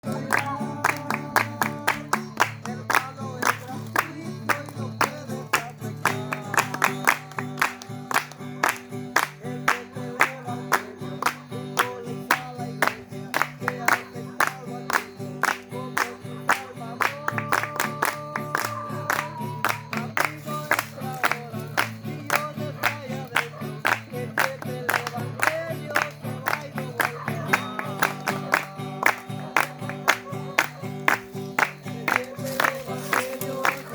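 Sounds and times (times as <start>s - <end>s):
guitar accompaniment: 0.0s - 33.9s
hand-clapping on the beat: 0.0s - 33.9s
group singing: 15.6s - 33.9s.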